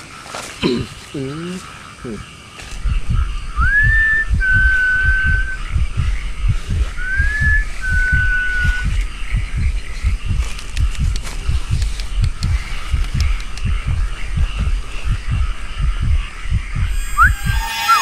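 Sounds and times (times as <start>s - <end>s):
low thumps: 2.6s - 18.0s
person whistling rising calls: 3.6s - 5.6s, 7.0s - 8.9s, 16.9s - 18.0s.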